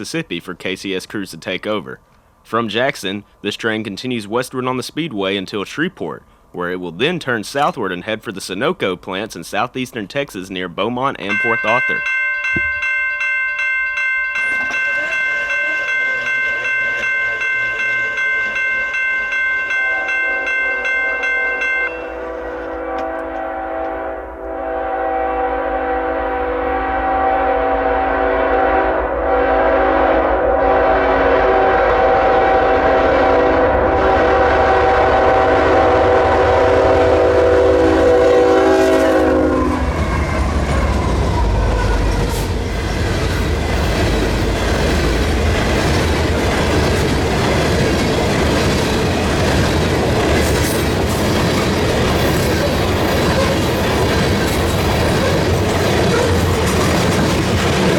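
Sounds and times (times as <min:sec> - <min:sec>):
locomotive horn blast: 0:22.0 - 0:40.6
train cars clickety-clack: 0:38.1 - 0:57.9.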